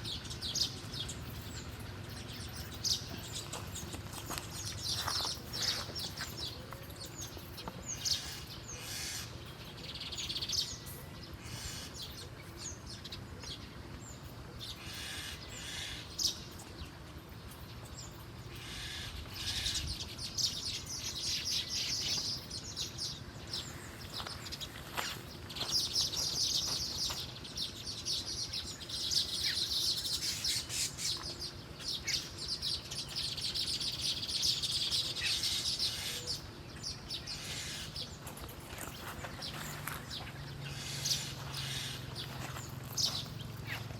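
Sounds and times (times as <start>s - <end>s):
songbirds chirping and twittering: 0.0s - 43.9s.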